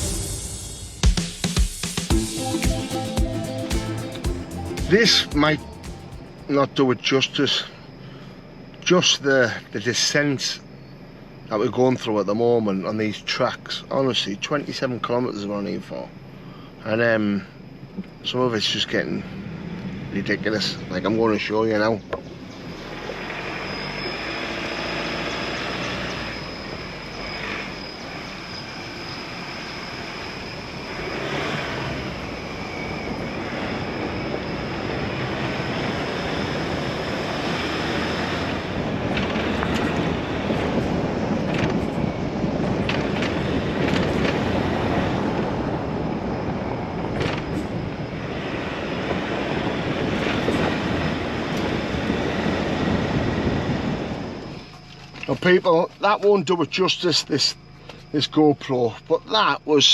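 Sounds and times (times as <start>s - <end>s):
tyres rumbling over rough ground: 16.9s - 59.7s
vehicle knocks and rattles: 39.1s - 44.8s.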